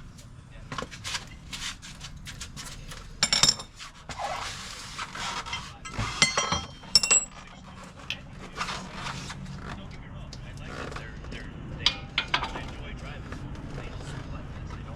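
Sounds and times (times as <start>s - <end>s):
metal scraping: 1.3s - 9.8s, 11.8s - 14.4s
metal objects clinking: 3.2s - 3.8s, 5.2s - 8.3s, 11.9s - 13.0s.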